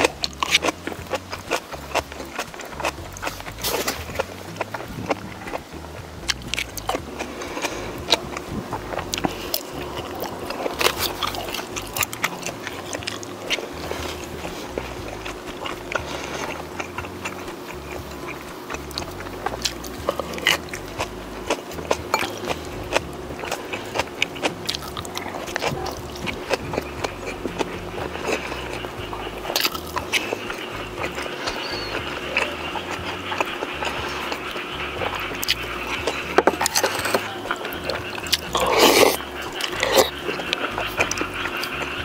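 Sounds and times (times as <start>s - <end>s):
chewing and biting food: 0.0s - 42.0s
sharp clicks and crunches: 0.0s - 42.0s.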